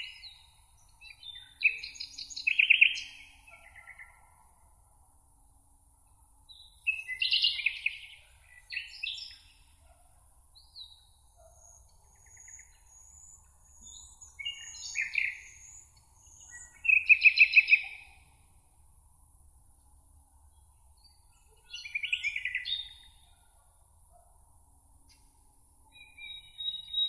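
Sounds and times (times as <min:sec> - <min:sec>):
songbirds singing: 0:00.0 - 0:04.5, 0:06.5 - 0:18.4, 0:20.5 - 0:23.6, 0:25.8 - 0:27.0.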